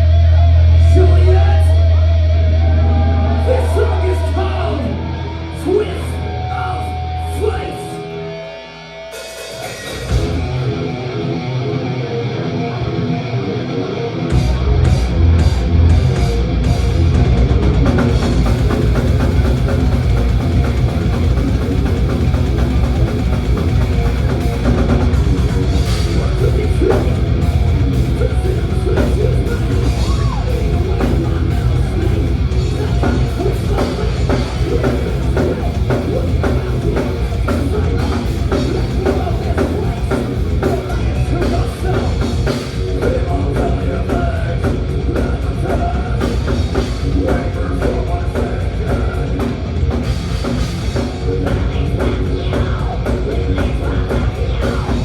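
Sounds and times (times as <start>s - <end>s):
thrash metal band playing live: 0.0s - 55.0s
rapid drum strokes: 14.4s - 55.0s.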